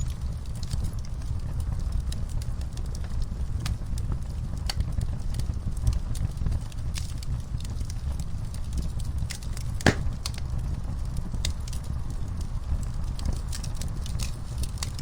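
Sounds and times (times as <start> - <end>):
fire rumbling and crackling: 0.0 - 15.0
loud pop of fire: 9.8 - 10.4.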